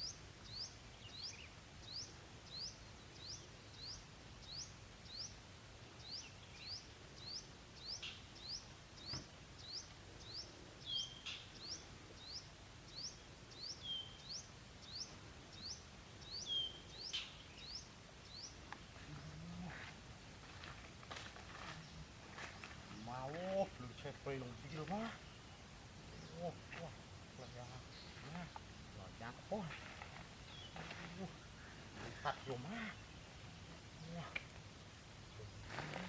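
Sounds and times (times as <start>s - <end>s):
bird chirping: 0.0s - 5.4s, 6.0s - 19.9s, 21.5s - 34.5s.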